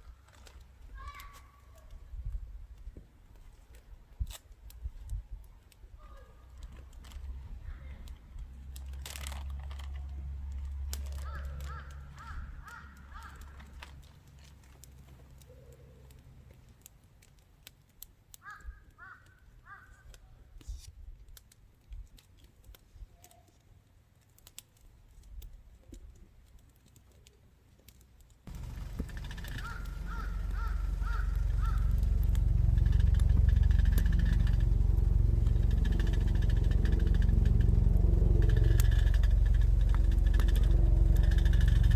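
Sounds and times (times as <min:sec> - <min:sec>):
small ticks and crackles: 0:00.0 - 0:41.9
short bird calls: 0:11.2 - 0:13.6, 0:28.5 - 0:41.9
loud engine-like rumble with hum: 0:28.5 - 0:41.9
low rumble: 0:28.5 - 0:41.9.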